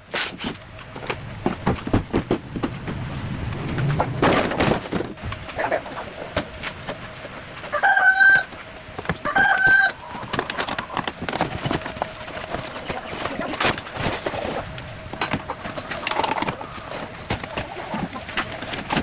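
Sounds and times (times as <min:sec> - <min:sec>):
rooster crowing: 0:07.7 - 0:11.0.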